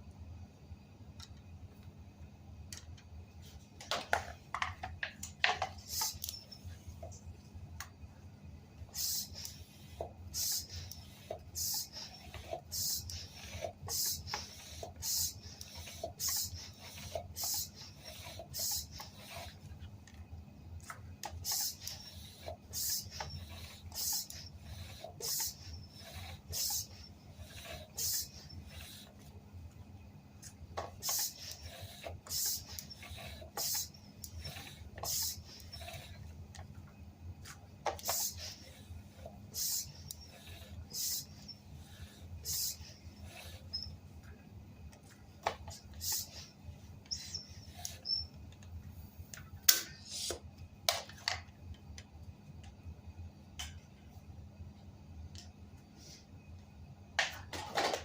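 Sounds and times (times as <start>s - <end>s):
hand pump hissing air: 5.7s - 6.8s, 8.9s - 19.7s, 21.2s - 29.3s, 30.8s - 36.3s, 37.8s - 44.0s, 45.4s - 48.3s, 49.7s - 50.4s.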